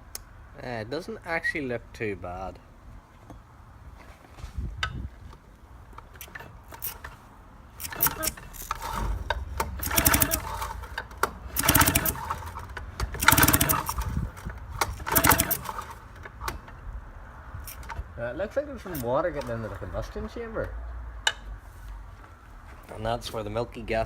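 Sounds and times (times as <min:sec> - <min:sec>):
outboard motor rattling whir: 0:08.8 - 0:16.0.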